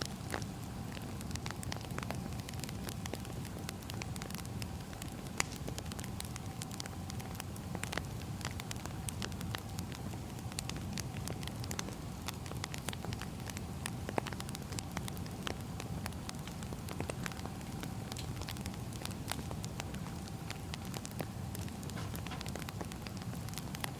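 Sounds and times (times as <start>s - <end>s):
fire low rumble: 0.0s - 23.9s
firewood crackling and popping: 0.0s - 23.9s.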